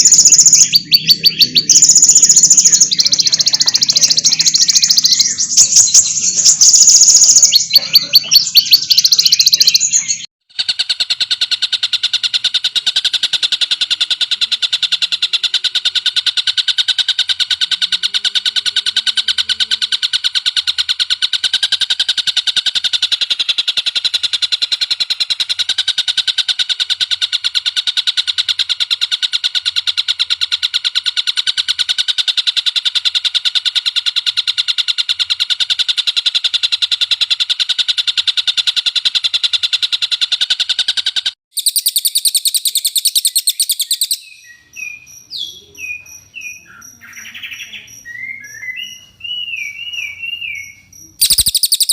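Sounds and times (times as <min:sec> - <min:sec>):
songbird trilling: 0:00.0 - 0:10.3, 0:41.5 - 0:51.9
quiet sliding bird chirps: 0:00.0 - 0:35.3, 0:38.8 - 0:51.9.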